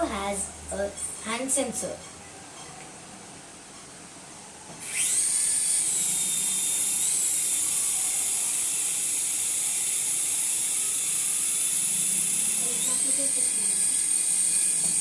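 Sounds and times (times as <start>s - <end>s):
toy helicopter rotor whine: 4.8s - 15.0s.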